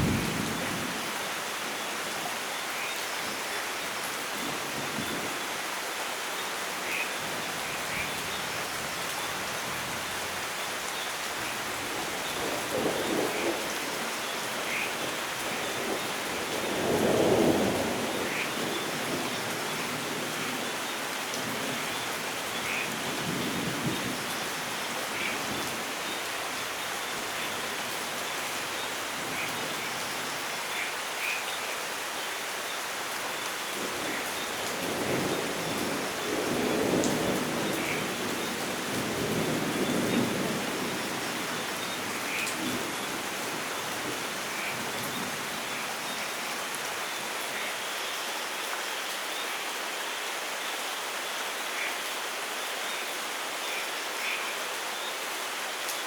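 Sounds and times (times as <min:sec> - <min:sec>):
thunder rumbling: 0:00.0 - 0:01.0
heavy rain hissing: 0:00.0 - 0:56.0.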